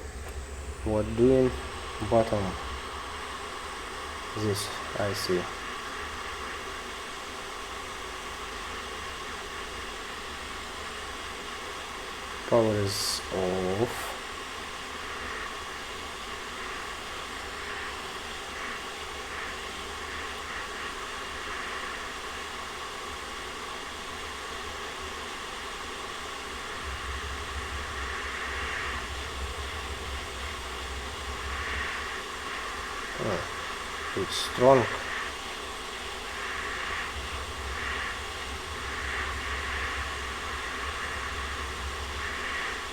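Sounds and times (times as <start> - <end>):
low rumble: 0.0 - 6.5, 26.4 - 42.9
hot-air station hissing: 0.0 - 42.9.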